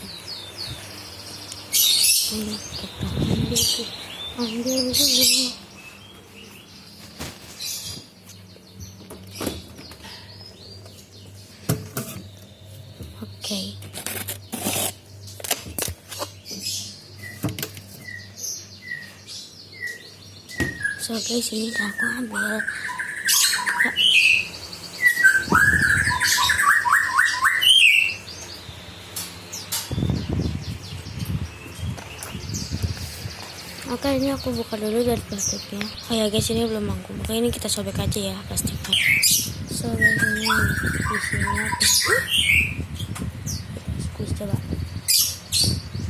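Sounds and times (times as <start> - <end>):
birds chirping: 0.0 - 46.0.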